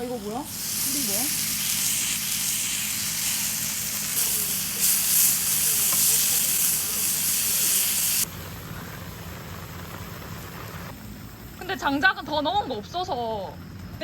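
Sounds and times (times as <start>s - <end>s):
food sizzling in fat: 0.0s - 8.3s.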